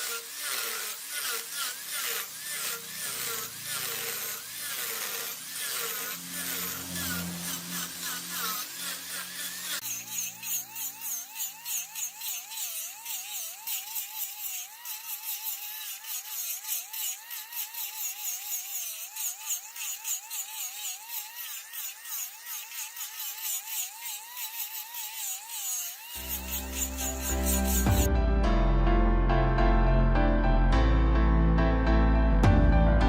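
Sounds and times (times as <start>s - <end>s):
tool cutting spinning wood crackle: 0.0s - 28.1s
wood lathe whine: 0.0s - 28.1s.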